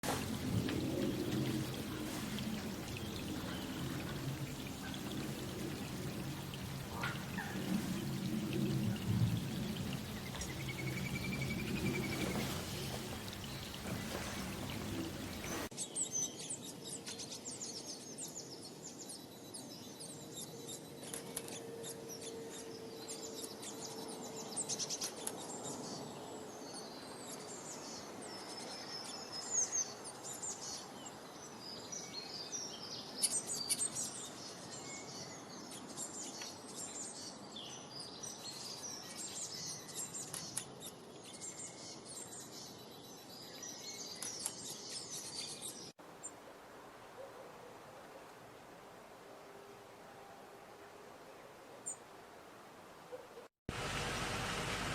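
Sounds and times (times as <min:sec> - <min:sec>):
small birds chirping: 0:00.8 - 0:21.6
steady background hiss: 0:46.0 - 0:54.9.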